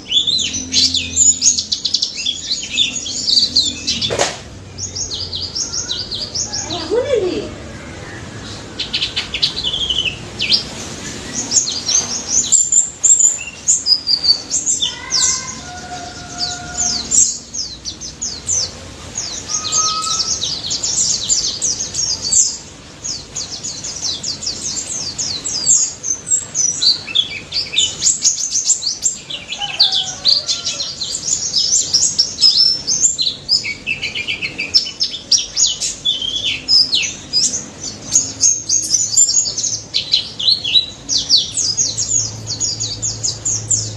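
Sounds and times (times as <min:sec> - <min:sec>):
white-eye bird chirping: 0:00.0 - 0:43.9
whistled bird notes: 0:19.2 - 0:22.5.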